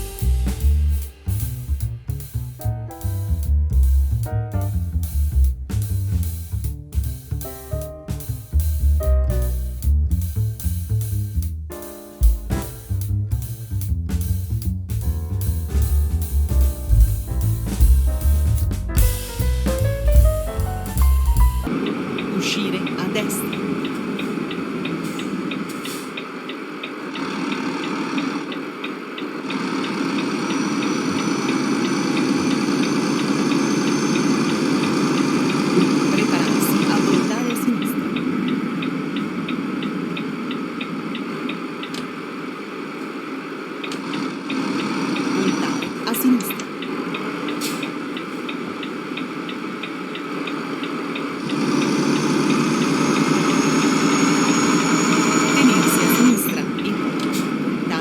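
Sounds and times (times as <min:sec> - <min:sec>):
vehicle engine rumble: 0:00.0 - 0:22.1
vehicle engine running: 0:00.0 - 0:22.2, 0:23.5 - 0:58.0.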